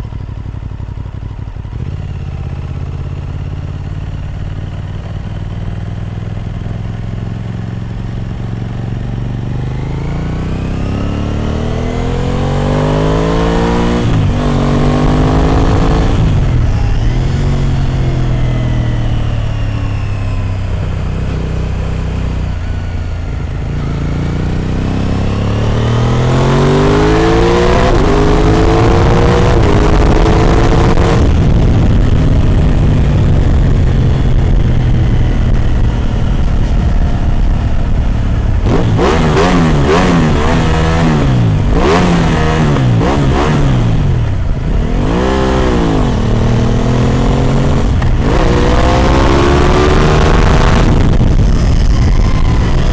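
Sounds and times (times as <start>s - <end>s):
motorcycle engine accelerating: 0.0s - 52.9s.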